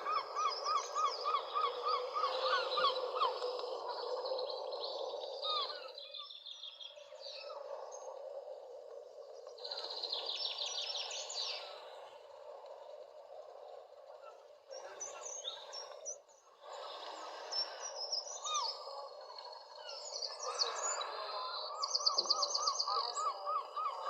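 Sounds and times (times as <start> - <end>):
birds chirping: 14.2 - 24.0.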